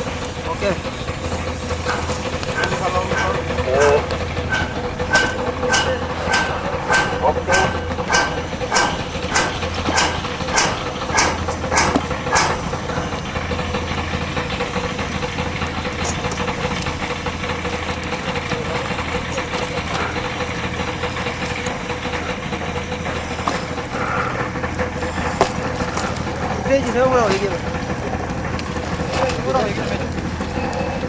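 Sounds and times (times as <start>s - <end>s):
engine humming: 0.0s - 31.0s
sharp knocks: 1.8s - 13.3s.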